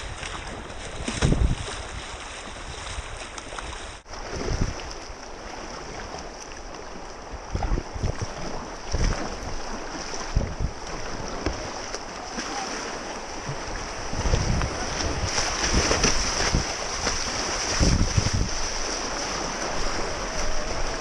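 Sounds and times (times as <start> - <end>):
wind buffeting microphone: 0.0 - 6.1, 7.2 - 11.8, 13.3 - 21.0
river water rushing: 8.2 - 21.0.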